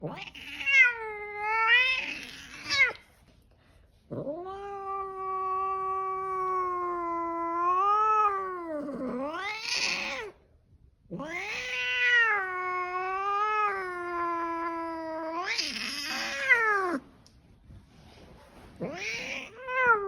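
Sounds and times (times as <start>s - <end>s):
cat yowling angrily: 0.0s - 3.0s, 4.2s - 10.4s, 11.1s - 17.0s, 18.8s - 20.0s.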